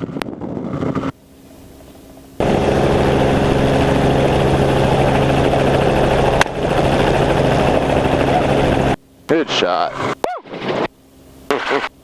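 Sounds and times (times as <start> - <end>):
helicopter rotor and engine hum: 0.0 - 12.0.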